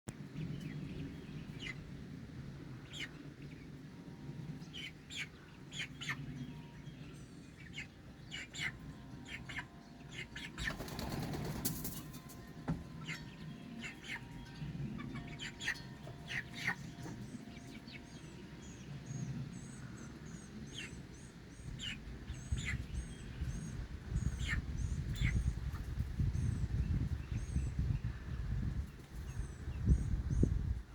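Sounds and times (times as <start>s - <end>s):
rooster flapping wings: 10.7s - 12.1s.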